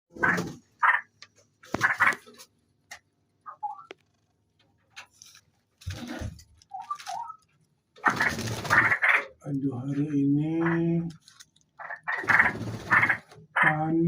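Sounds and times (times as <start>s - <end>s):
bulbul chirping calls: 3.5s - 3.9s.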